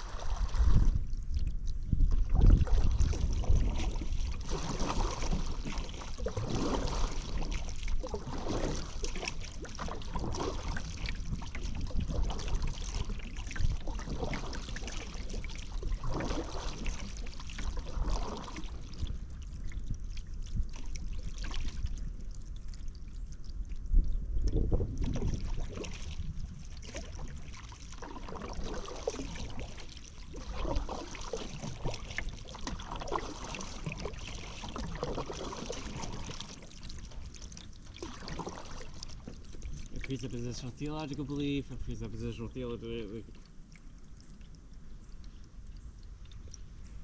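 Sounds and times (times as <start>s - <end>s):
paddle splashing in water: 0.0s - 23.1s, 24.5s - 47.0s
wind rumble on microphone: 0.0s - 36.5s.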